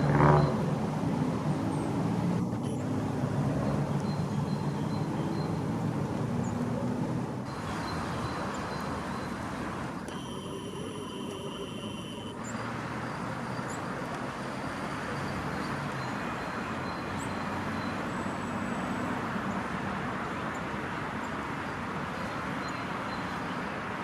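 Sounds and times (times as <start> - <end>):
city traffic rumble: 0.0 - 24.0
steady high tone: 7.5 - 13.1.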